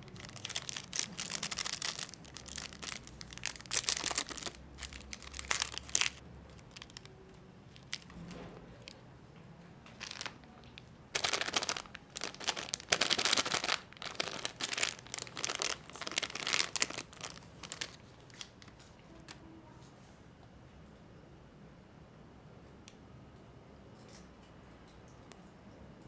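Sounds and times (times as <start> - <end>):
plastic wrapper crinkling: 0.0 - 9.0, 9.9 - 19.4.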